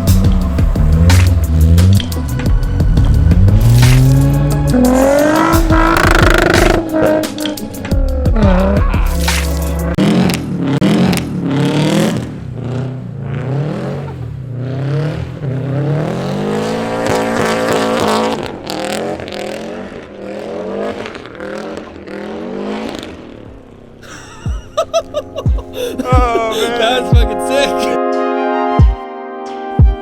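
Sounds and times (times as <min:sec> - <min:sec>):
car engine revving: 0:00.0 - 0:24.1.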